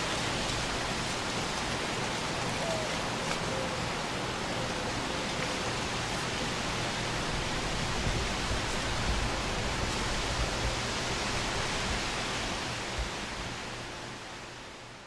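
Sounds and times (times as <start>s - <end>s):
low rumble of wind: 0.0s - 15.0s
wind rustling tree leaves: 0.0s - 15.0s.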